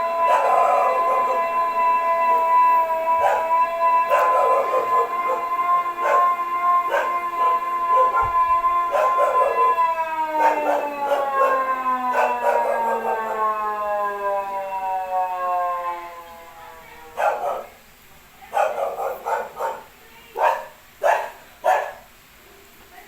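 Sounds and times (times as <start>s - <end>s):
alarm siren: 0.0s - 17.2s
dog barking: 0.2s - 1.6s, 3.1s - 8.3s, 8.9s - 13.4s, 17.1s - 17.8s, 18.5s - 22.1s.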